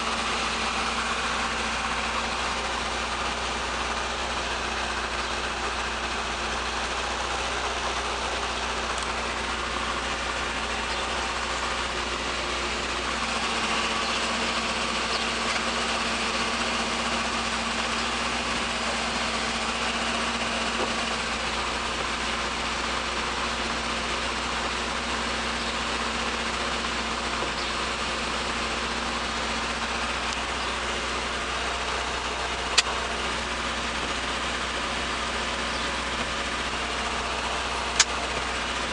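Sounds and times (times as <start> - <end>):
car engine idling: 0.0 - 38.9
sharp click: 38.0 - 38.2.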